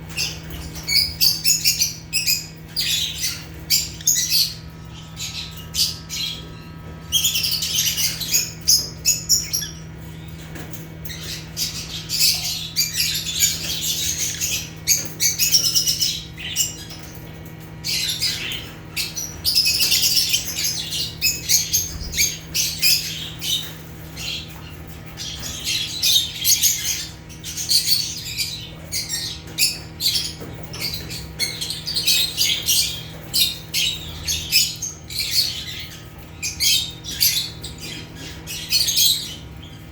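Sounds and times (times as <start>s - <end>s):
lovebirds chirping and squawking: 0.0s - 39.9s
steady low hum: 0.0s - 39.9s.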